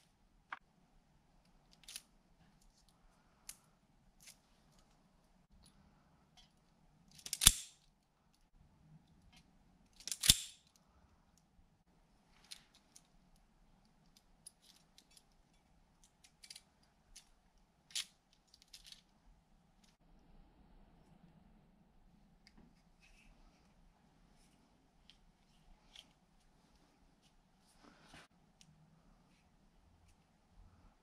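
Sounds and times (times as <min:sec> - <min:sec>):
wire cutters snipping wires: 0:07.2 - 0:07.8, 0:10.0 - 0:10.6.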